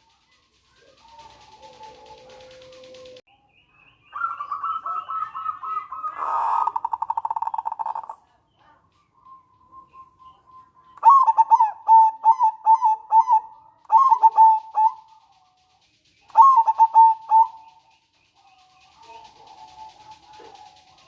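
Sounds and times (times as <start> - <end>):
dove cooing: 0.6 - 3.2, 4.2 - 8.8, 11.0 - 15.6, 16.3 - 17.9, 18.6 - 21.0.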